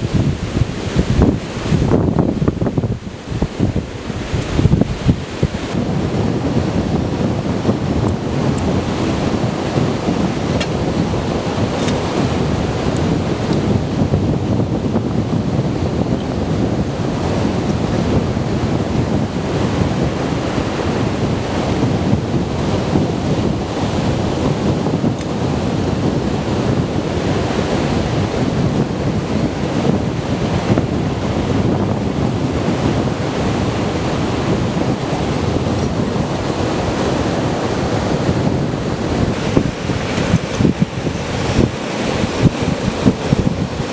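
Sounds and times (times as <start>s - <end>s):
surf breaking on a beach: 0.0s - 43.9s
wind buffeting microphone: 0.0s - 43.9s.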